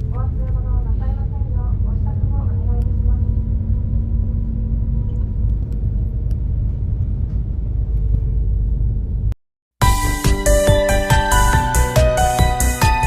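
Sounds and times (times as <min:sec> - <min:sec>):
faint hum: 0:00.0 - 0:09.4
ferry engines rumbling: 0:00.0 - 0:09.4.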